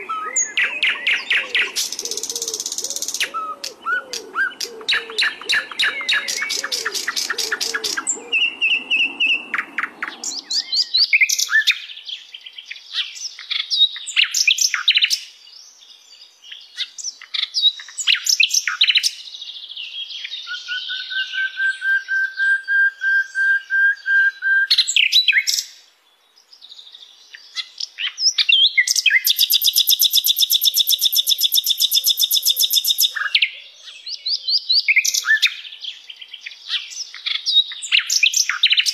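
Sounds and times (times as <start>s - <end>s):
flycatcher singing: 0.0s - 12.0s, 27.5s - 38.9s.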